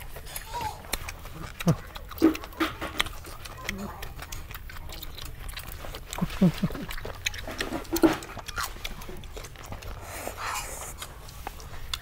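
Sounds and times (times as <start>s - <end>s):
man chewing and lip smacking: 0.0s - 12.0s.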